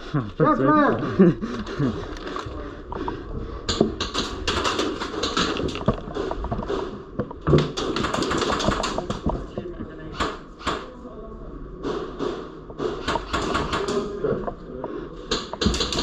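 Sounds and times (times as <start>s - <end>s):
airsoft guns firing: 3.7s - 6.8s, 7.5s - 9.3s, 11.8s - 14.1s, 15.3s - 16.0s.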